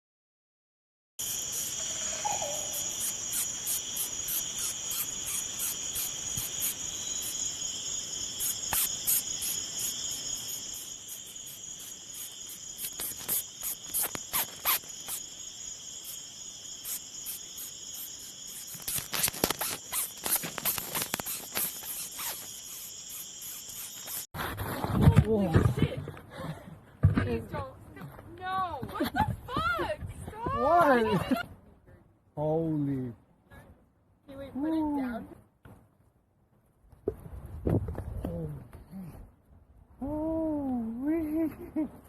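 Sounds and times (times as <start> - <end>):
insects trilling: 1.2 - 24.3.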